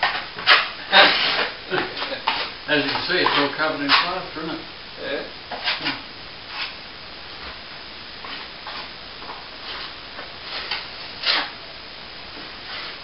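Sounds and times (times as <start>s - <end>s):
hand tools scraping and clicking: 0.0s - 4.2s.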